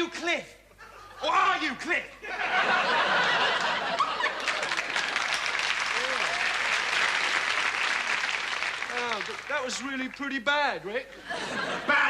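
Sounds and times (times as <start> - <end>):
audience clapping: 3.3 - 10.5.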